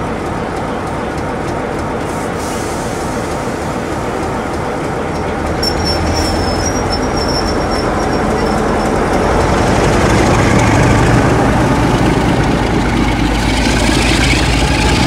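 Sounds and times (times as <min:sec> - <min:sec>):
train rumble with low hum: 0:00.0 - 0:15.0
steel on rail squeal: 0:05.1 - 0:09.2.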